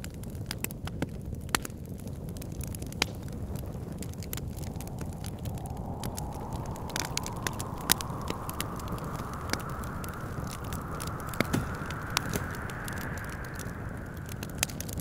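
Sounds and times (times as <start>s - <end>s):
wood fire crackling and popping: 0.0s - 15.0s
low wind rumble: 1.6s - 15.0s
whistling wind howl: 2.3s - 15.0s.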